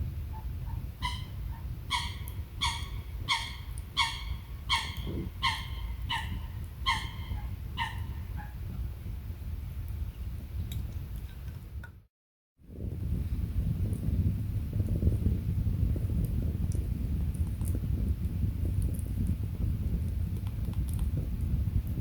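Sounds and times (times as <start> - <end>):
animal barking: 1.0 - 8.6.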